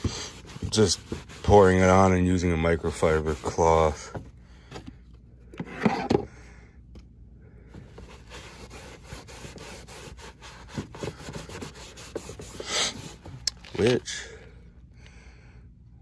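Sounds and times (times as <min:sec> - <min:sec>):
cloth wiping scratchily: 0:00.0 - 0:04.0, 0:08.0 - 0:13.3.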